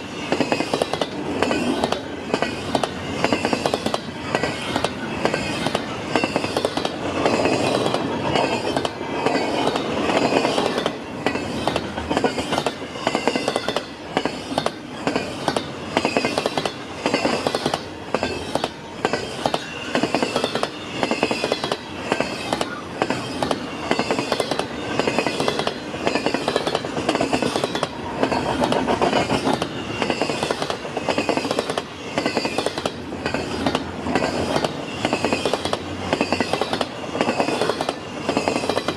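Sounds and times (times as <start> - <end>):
high wheel squeal: 0.0 - 38.9
train wheels clacking over rail joints: 0.0 - 38.9.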